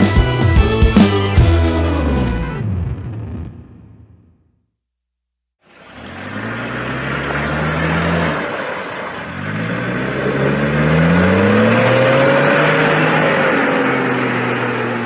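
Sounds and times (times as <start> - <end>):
vehicle engine accelerating: 5.6 - 15.0.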